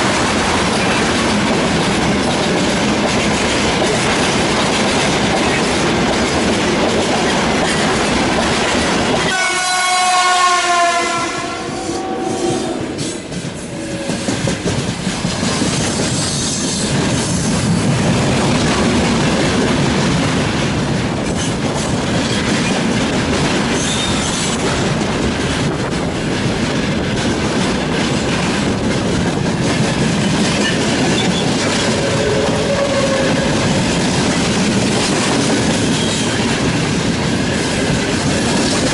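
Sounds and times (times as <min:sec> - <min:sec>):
train wheels clattering on rails: 0:00.0 - 0:38.9
locomotive horn: 0:09.3 - 0:14.4, 0:31.8 - 0:33.7.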